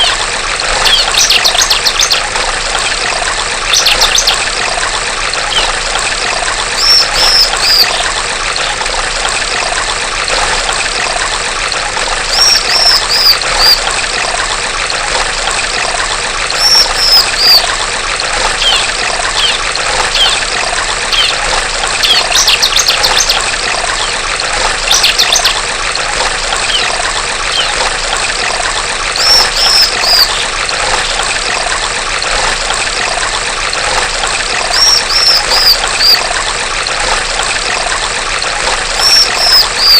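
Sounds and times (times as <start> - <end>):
running stream water: 0.0 - 39.9
bird calling high falling notes: 39.0 - 39.9.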